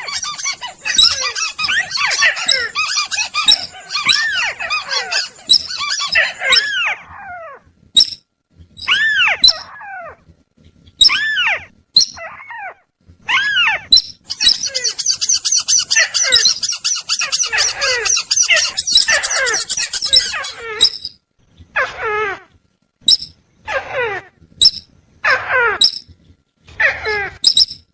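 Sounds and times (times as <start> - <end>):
down-slurred bird calls: 0.0 - 7.0, 14.3 - 21.1
rapid high chattering trill: 14.3 - 20.6.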